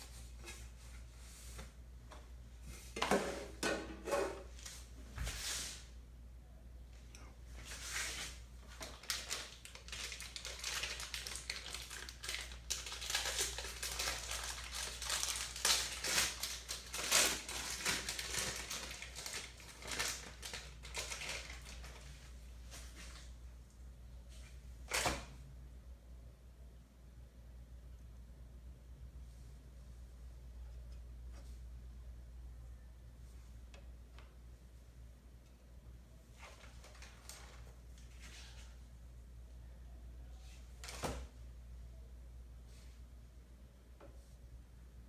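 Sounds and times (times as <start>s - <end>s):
crinkling and rustling: 7.6s - 23.4s, 36.2s - 38.8s.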